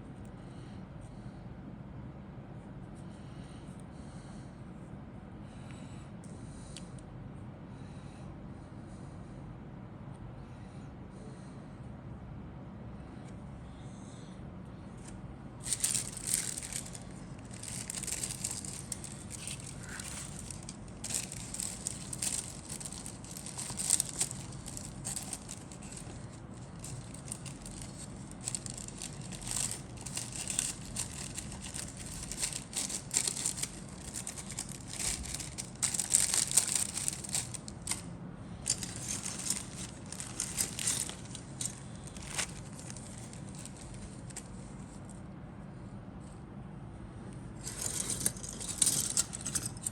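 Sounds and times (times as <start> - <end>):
plastic packaging crinkling: 15.6 - 44.6, 47.6 - 49.9.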